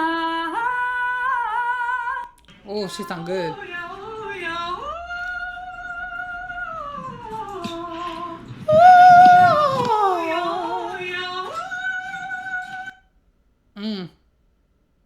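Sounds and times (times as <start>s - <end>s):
woman singing vocal warm-up: 3.3s - 13.0s.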